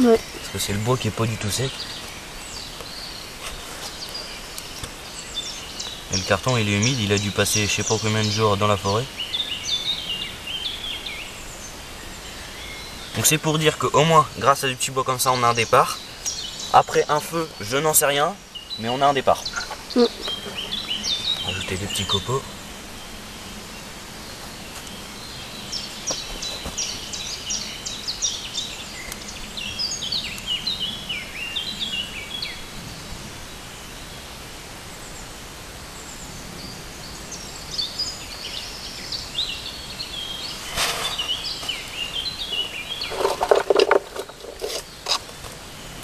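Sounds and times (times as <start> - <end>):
outdoor hiss: 0.0 - 46.0
songbird chirping: 0.0 - 46.0
rustling and knocking: 26.0 - 26.9, 40.6 - 41.8, 42.5 - 45.6.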